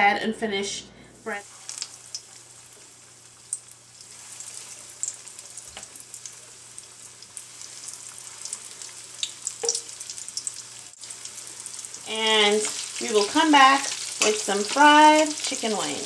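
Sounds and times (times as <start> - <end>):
chicken frying in hot oil: 1.3 - 16.0.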